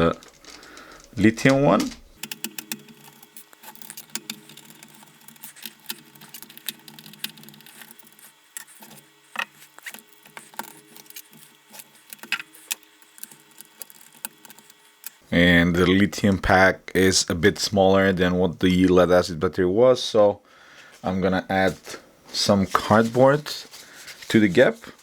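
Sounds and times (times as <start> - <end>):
faint low hum: 0.0 - 12.2
plastic parts clicking and rattling: 0.0 - 15.2.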